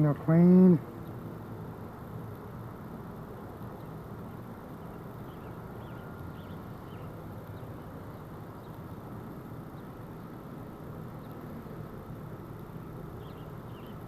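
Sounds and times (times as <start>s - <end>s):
honeybees buzzing: 0.0s - 14.0s
faint bird chirps: 4.8s - 8.8s, 13.2s - 14.0s.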